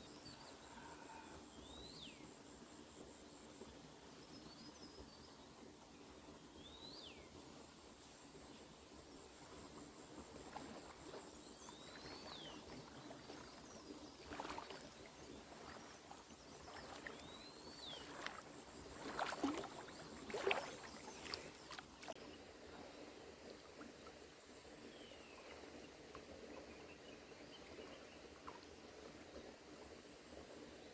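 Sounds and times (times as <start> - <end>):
water sloshing and splashing: 10.2 - 22.2.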